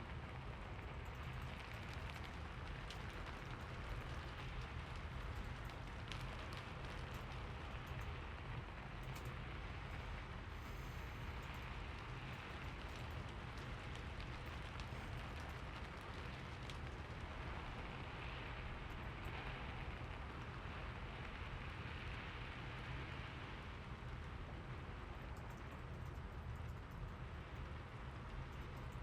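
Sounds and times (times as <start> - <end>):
steady rain hiss: 0.0 - 29.0
raindrop ticks: 0.3 - 10.2, 11.3 - 17.9, 25.2 - 29.0.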